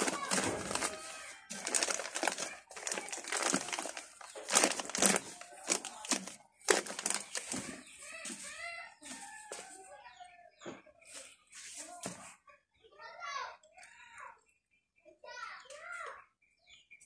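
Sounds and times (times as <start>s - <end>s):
crinkling and rustling: 0.0s - 9.9s.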